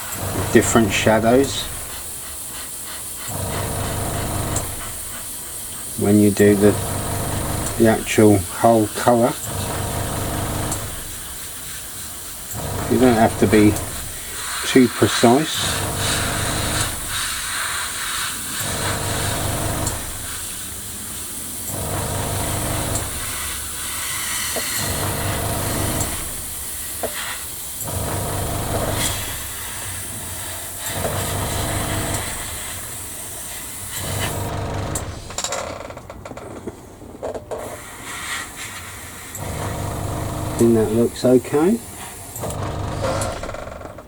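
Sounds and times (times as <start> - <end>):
airbrush hissing: 0.0 - 35.4, 37.6 - 43.8
low machine hum: 0.1 - 2.2, 3.3 - 5.2, 6.4 - 8.2, 9.5 - 11.4, 12.5 - 14.5, 15.6 - 17.3, 18.6 - 20.5, 21.7 - 23.4, 24.8 - 26.6, 33.9 - 35.4, 39.4 - 41.2, 42.4 - 43.8.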